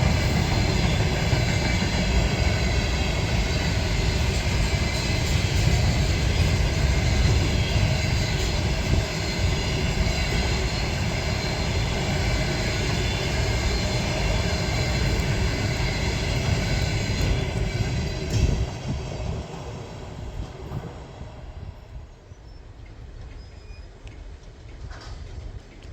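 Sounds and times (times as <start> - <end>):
train rumbling past: 0.0 - 25.9.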